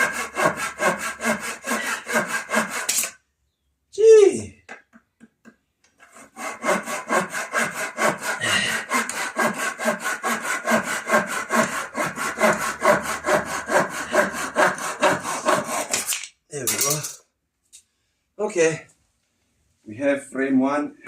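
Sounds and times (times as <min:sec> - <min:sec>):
hand saw cutting timber: 0:00.0 - 0:03.2, 0:06.0 - 0:16.2.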